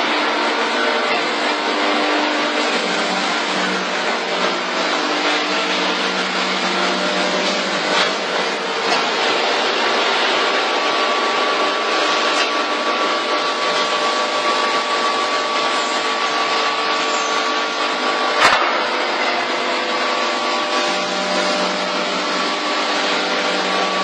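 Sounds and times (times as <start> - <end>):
packing machine humming and whining: 0.0 - 24.0
sharp mechanical clack: 18.4 - 19.0.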